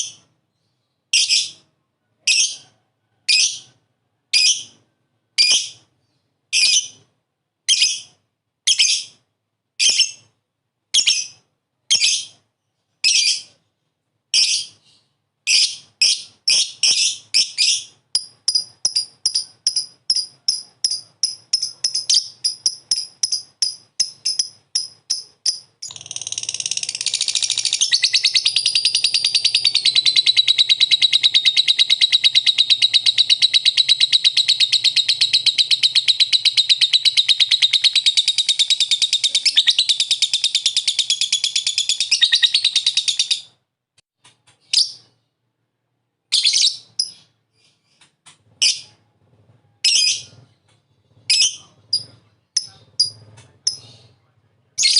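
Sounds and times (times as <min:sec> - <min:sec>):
lovebird high chirps: 0:00.0 - 0:01.7, 0:05.4 - 0:05.9, 0:06.5 - 0:07.1, 0:07.7 - 0:09.2, 0:09.8 - 0:10.3, 0:10.9 - 0:12.4, 0:13.0 - 0:13.6, 0:14.3 - 0:43.6, 0:44.6 - 0:45.1, 0:46.3 - 0:48.0, 0:48.6 - 0:49.0, 0:49.8 - 0:50.4, 0:51.2 - 0:54.1
lovebird rapid chatter: 0:15.5 - 0:43.5, 0:51.1 - 0:54.0.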